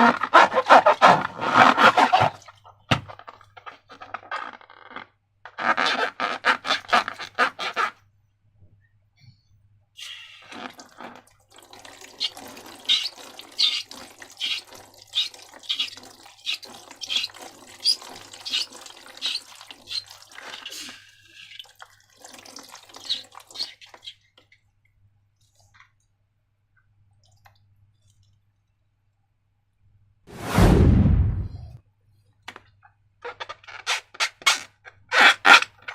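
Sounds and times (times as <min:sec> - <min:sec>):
slime squelching and dripping: 0:10.0 - 0:28.6.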